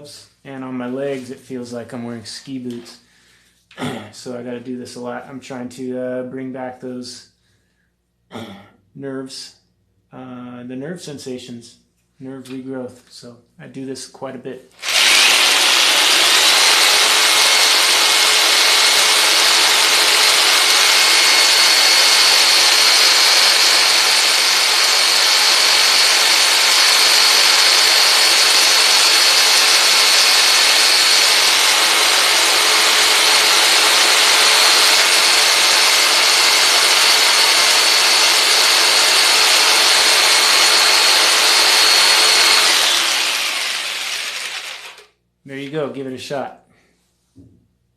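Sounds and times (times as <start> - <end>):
jigsaw motor whine and buzz: 14.8 - 45.1.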